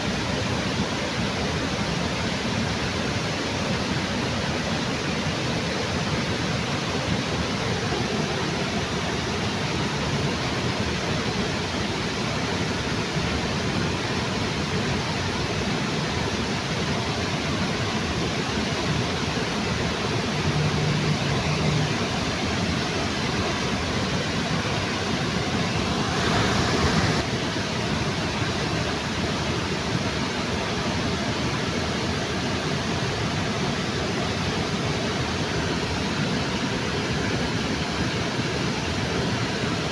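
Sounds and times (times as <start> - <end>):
waterfall rushing: 13.1 - 39.9.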